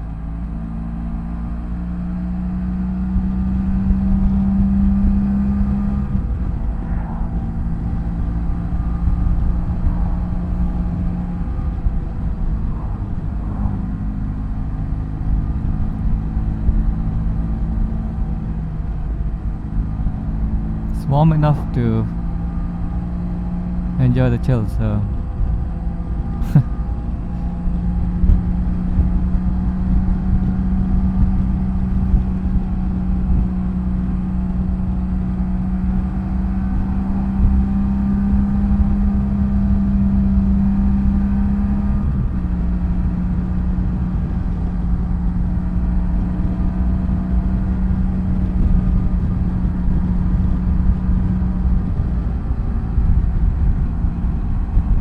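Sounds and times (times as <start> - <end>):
motorcycle engine cruising: 0.4 - 21.0.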